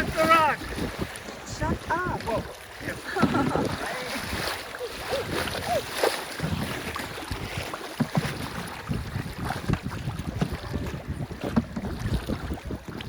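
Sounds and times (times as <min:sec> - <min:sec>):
river water rushing and splashing: 0:00.0 - 0:13.0
wind noise on microphone: 0:00.0 - 0:13.0.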